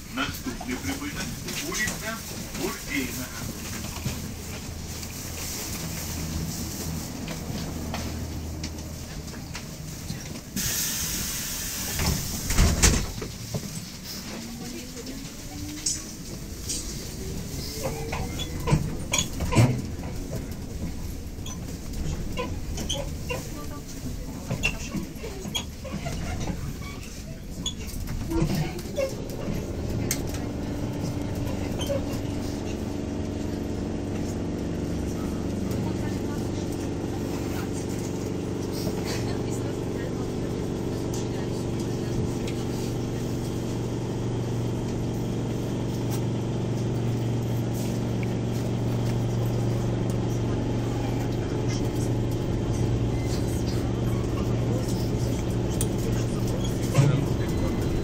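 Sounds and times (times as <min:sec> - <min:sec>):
trolleybus rumble: 0:00.0 - 0:58.0
compressed air hissing: 0:10.6 - 0:12.5.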